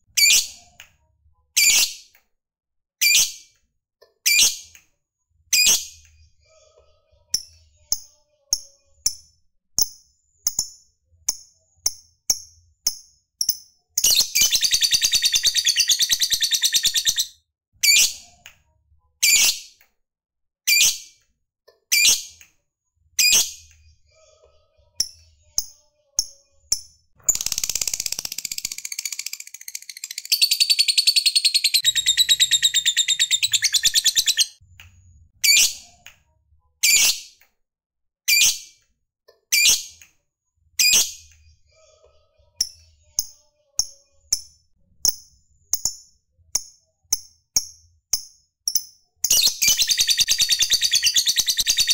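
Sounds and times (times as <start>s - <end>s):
bird chirping: 12.9s - 18.2s, 27.2s - 34.6s, 48.7s - 51.9s.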